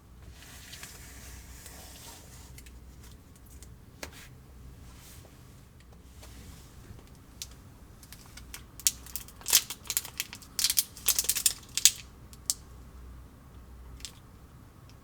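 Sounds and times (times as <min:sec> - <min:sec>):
plastic packaging crinkling: 0:07.4 - 0:12.6.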